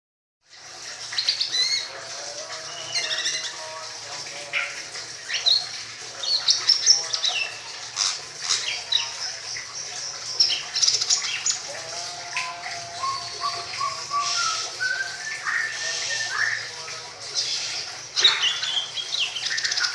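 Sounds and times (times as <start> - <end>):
songbird singing: 1.2 - 3.7, 8.5 - 19.9.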